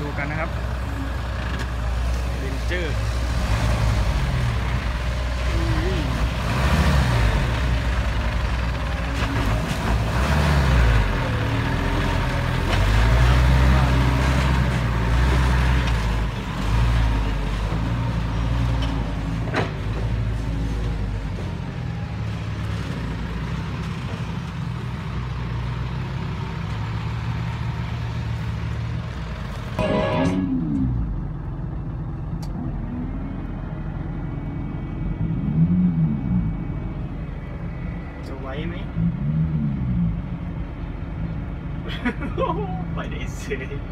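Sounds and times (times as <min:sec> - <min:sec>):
heavy diesel engine running: 0:00.0 - 0:18.4, 0:19.0 - 0:35.5.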